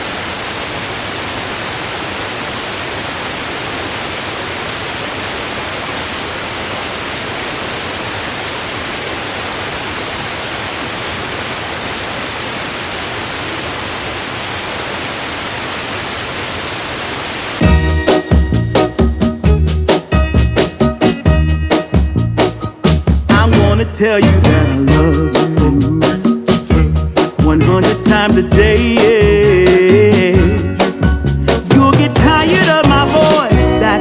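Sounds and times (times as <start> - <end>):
steady rushing noise: 0.0 - 17.6
music with drum beat: 17.6 - 33.8.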